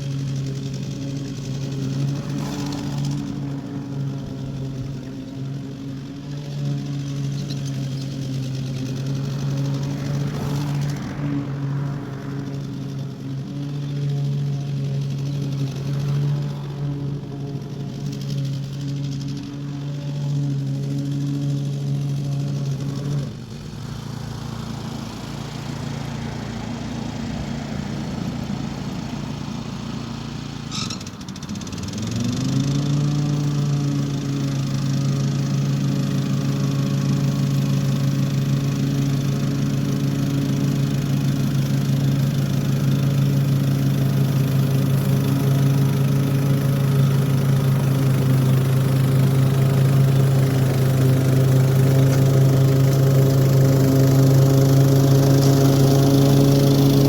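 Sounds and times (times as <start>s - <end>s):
mower engine running: 0.0s - 57.0s.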